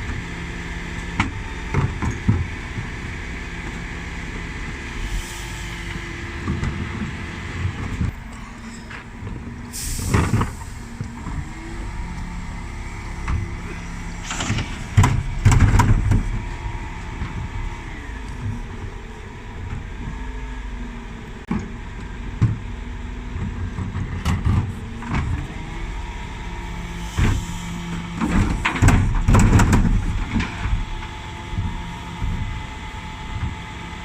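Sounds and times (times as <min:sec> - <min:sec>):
refuse truck engine running: 0:00.0 - 0:34.0
loud bangs and clatter of bins: 0:06.4 - 0:19.1, 0:27.2 - 0:32.6.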